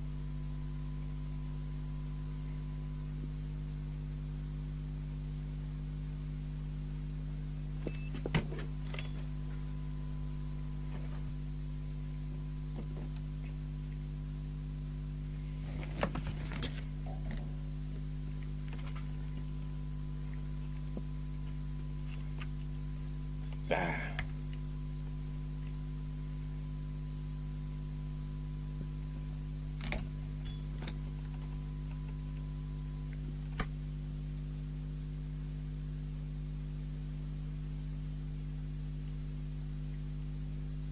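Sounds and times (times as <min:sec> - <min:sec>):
electrical hum: 0:00.0 - 0:40.9.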